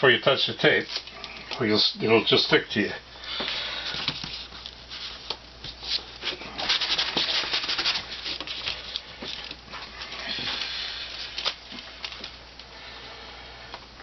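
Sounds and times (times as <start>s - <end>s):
wood veneer rustling and crackling: 3.4s - 12.4s.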